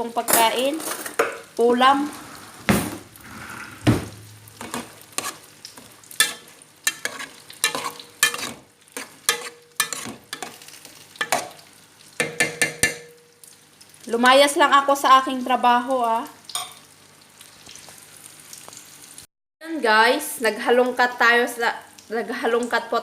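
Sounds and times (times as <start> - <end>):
utensil scraping a dish: 6.2 - 10.5.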